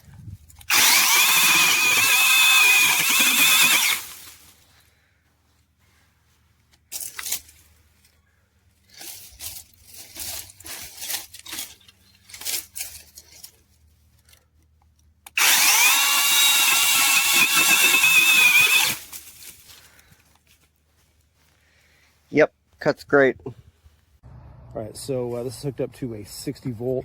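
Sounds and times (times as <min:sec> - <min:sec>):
chainsaw cutting wood: 0:00.6 - 0:04.4, 0:15.3 - 0:19.4
cordless chainsaw whining: 0:00.6 - 0:04.4, 0:15.3 - 0:19.4.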